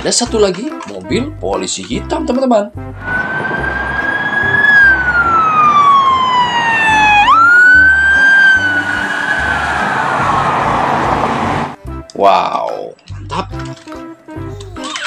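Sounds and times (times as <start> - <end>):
police car siren wailing: 3.0 - 11.8.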